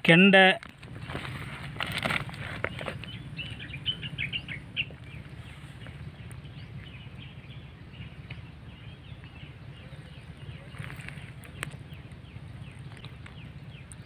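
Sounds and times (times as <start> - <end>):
small birds chirping: 0.1 - 14.0
steady low rumble: 0.6 - 14.0.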